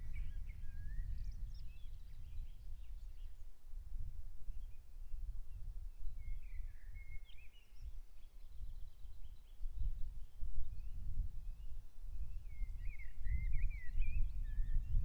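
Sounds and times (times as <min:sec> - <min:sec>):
wild birds singing: 0:00.0 - 0:03.6, 0:04.5 - 0:15.0.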